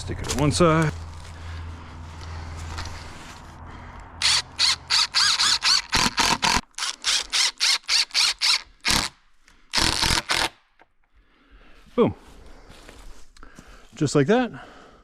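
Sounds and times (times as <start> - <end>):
power driver bursts with squeal: 4.2 - 6.6.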